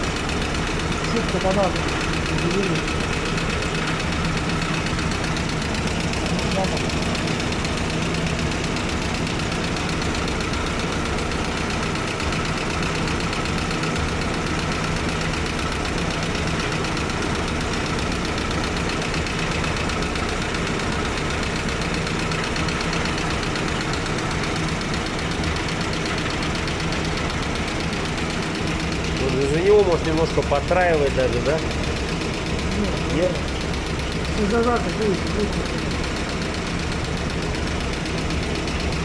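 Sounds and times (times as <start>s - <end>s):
engine idling with knocking beat: 0.0s - 39.0s.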